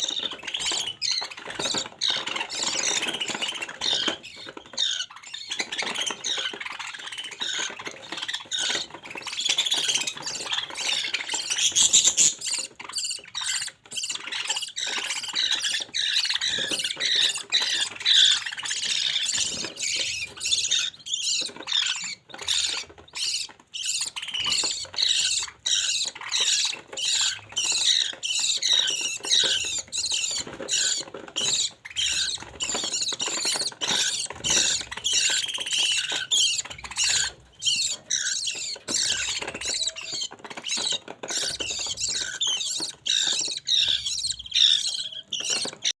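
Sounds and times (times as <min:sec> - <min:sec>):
budgerigar chicks chirping: 0:00.0 - 0:46.0.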